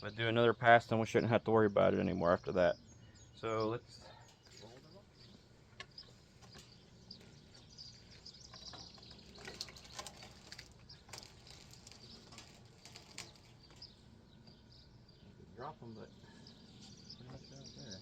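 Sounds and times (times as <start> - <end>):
birds chirping faintly: 0.0 - 18.0.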